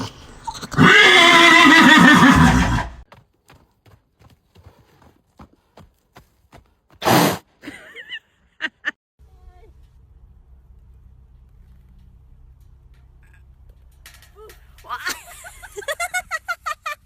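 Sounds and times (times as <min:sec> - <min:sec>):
horse whinnying: 0:00.3 - 0:03.0
light hoof clicks: 0:03.1 - 0:07.0.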